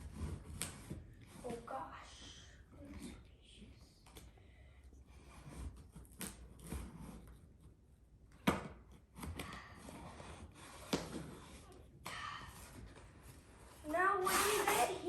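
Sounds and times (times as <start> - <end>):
cardboard box rubbing and scraping: 0.0 - 1.7, 5.1 - 7.8, 13.0 - 15.0.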